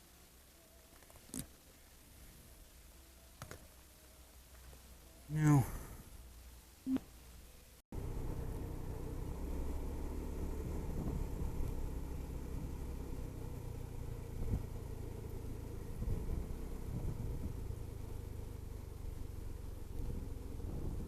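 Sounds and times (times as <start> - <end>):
road and wind noise: 0.0 - 21.0
scooter engine drone: 8.0 - 21.0.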